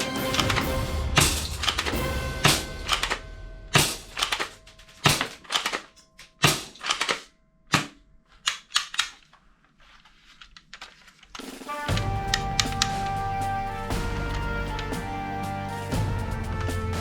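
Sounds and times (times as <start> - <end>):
toy pistol plastic clicks: 5.2 - 9.3.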